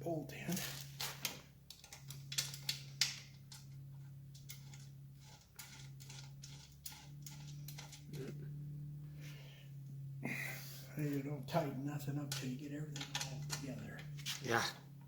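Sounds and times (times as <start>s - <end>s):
steady low hum: 0.0s - 15.0s
metal parts clicking: 0.6s - 8.3s, 13.0s - 14.3s.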